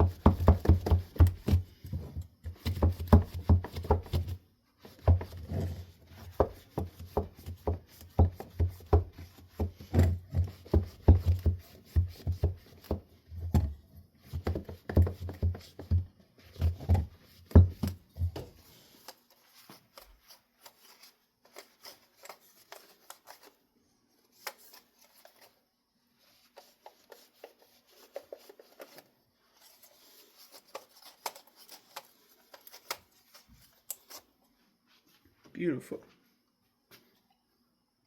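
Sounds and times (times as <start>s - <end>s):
rustling: 18.2s - 35.3s.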